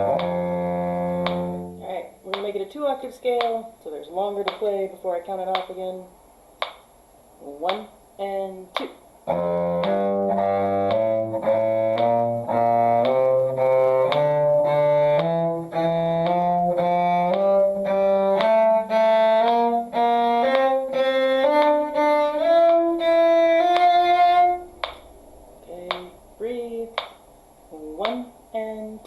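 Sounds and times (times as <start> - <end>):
bowed strings playing a scale: 0.0 - 2.5, 9.2 - 25.1.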